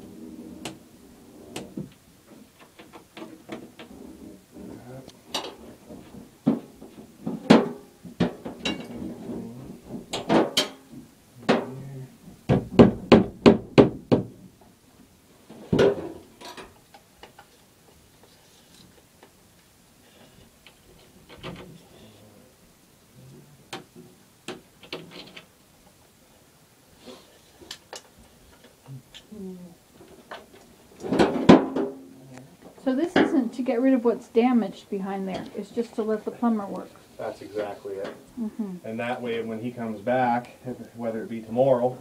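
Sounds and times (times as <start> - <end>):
strikes on drywall: 12.5 - 14.4.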